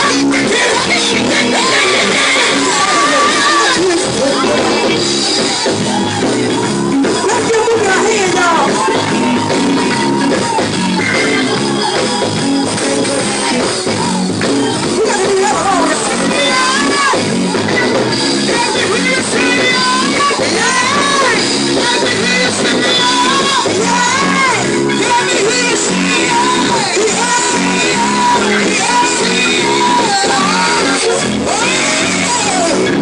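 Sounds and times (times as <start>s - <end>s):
people shouting: 0.0s - 6.4s, 7.1s - 11.8s
gospel band playing: 0.0s - 33.0s
people singing: 0.0s - 33.0s.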